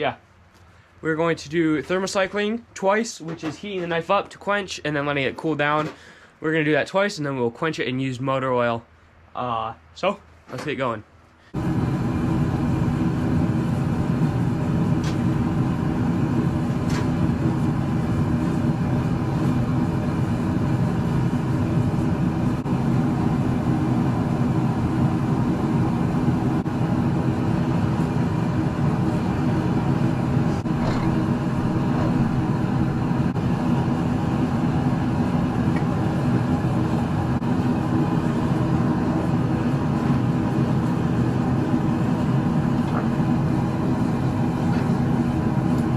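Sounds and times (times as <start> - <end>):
forge running: 11.6 - 45.9.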